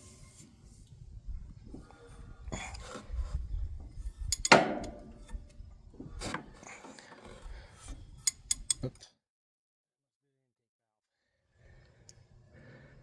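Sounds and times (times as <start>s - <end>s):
sharp metallic knocks: 4.3s - 5.4s.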